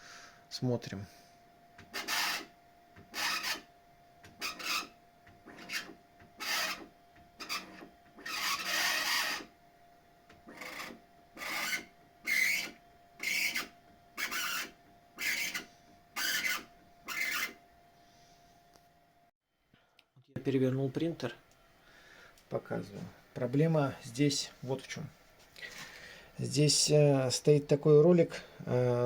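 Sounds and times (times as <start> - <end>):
printer belt squeaking: 1.8 - 2.5, 3.1 - 3.7, 4.3 - 9.5, 10.4 - 17.6.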